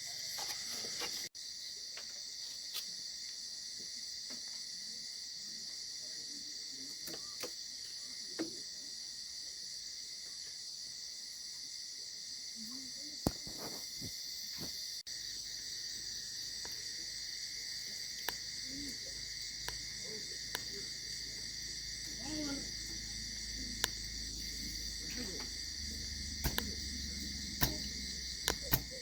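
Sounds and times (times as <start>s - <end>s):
insects trilling: 0.0s - 29.0s
sharp clicks: 25.1s - 29.0s.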